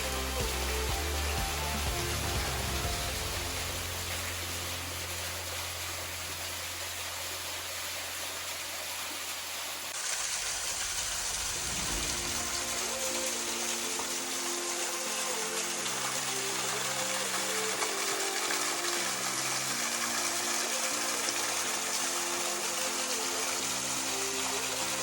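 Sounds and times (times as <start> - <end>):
soft background music: 0.0 - 7.8, 11.6 - 25.0
waterfall rushing: 0.0 - 25.0.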